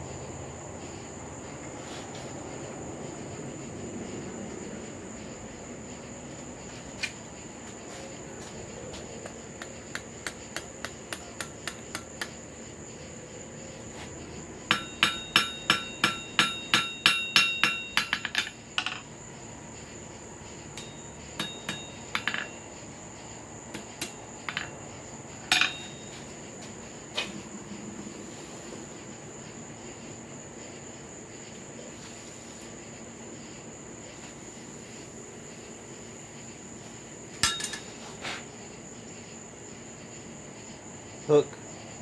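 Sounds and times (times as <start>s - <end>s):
hammer striking hot steel on anvil: 14.7s - 19.1s, 20.7s - 22.6s, 23.7s - 24.8s, 25.5s - 26.2s, 37.4s - 38.0s.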